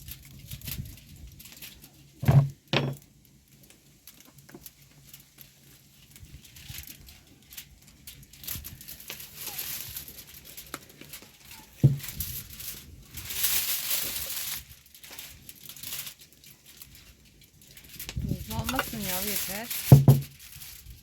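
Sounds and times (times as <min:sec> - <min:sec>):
crinkling and rustling handling: 0:00.0 - 0:21.0
sharp knock: 0:19.9 - 0:20.3.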